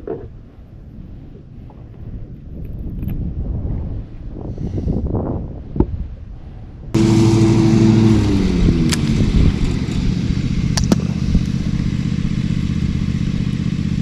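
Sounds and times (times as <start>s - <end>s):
boat motor: 7.0s - 14.0s.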